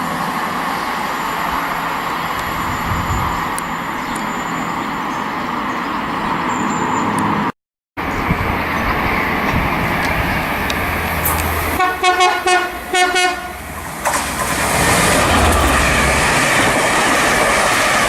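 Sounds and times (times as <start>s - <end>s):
train passing: 8.5s - 18.0s
low engine drone: 12.8s - 17.7s.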